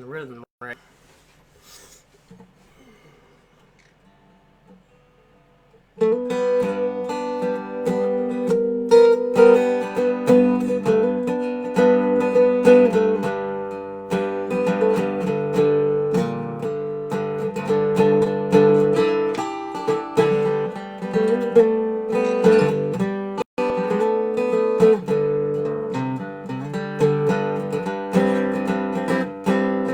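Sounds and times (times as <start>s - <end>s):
resonator guitar plucked: 6.0s - 29.9s.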